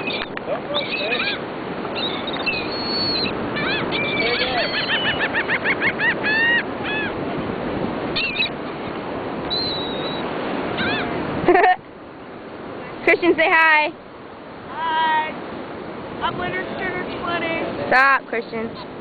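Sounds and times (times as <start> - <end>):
seagulls calling: 0.0 - 7.3, 8.1 - 11.7.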